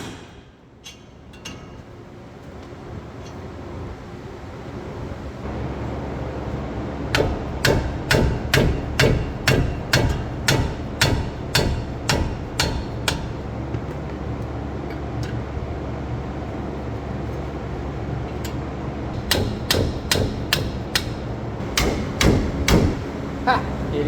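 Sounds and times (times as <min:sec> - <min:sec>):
hammer striking metal parts: 0:00.0 - 0:01.8, 0:07.1 - 0:13.5, 0:19.2 - 0:23.1.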